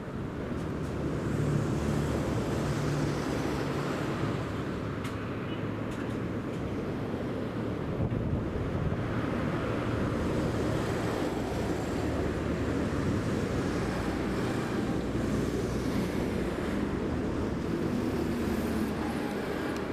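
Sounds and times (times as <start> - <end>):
wind rumble on microphone: 6.8 - 19.9.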